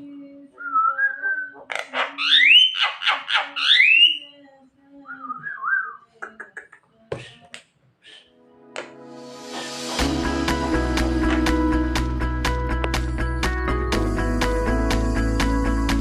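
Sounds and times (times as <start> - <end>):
bird whistling and clicking: 0.9 - 4.2.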